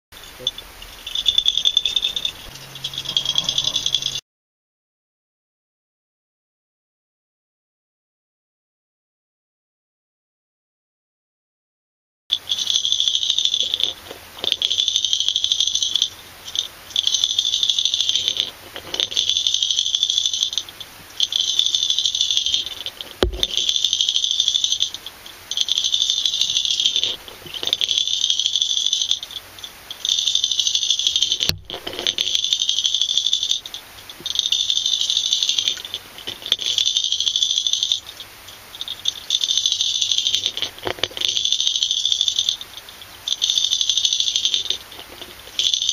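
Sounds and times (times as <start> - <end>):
fishing lure rattling underwater: 0.2 - 4.2, 12.3 - 45.9.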